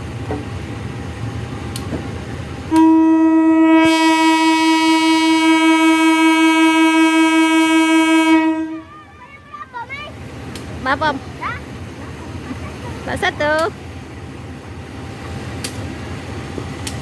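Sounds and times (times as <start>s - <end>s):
locomotive horn blast: 2.7s - 9.2s.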